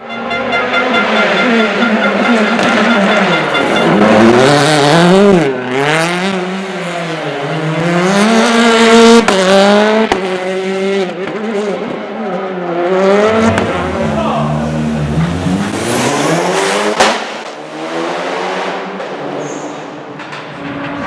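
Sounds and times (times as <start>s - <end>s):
car engine revving hard: 1.6s - 11.9s, 12.5s - 19.4s.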